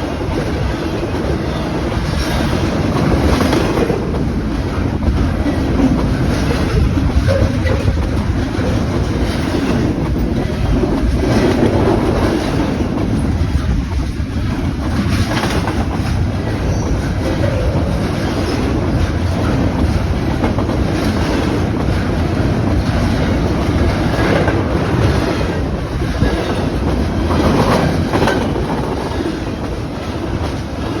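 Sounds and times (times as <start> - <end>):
clickety-clack over rail joints: 0.0 - 31.0
train wheels rumbling on rails: 0.0 - 31.0.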